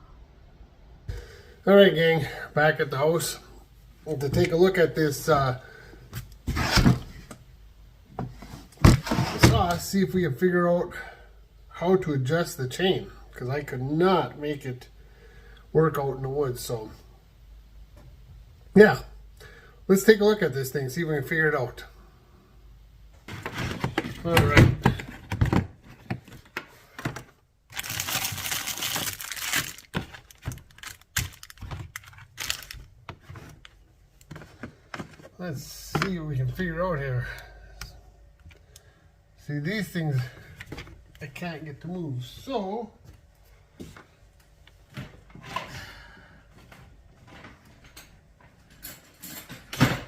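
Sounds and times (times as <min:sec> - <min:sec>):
crinkling rustle: 0:25.8 - 0:35.4.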